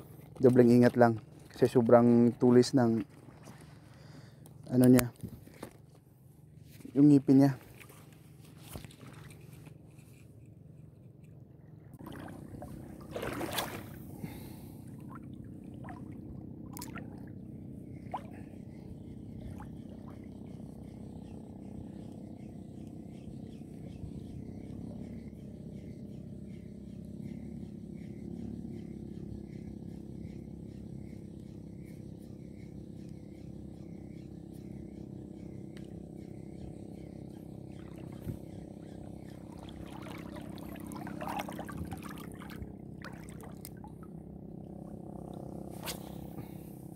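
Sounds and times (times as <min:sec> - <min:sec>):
seawater sloshing and lapping: 0:00.0 - 0:04.8, 0:06.5 - 0:10.4, 0:11.9 - 0:21.5, 0:37.5 - 0:46.8.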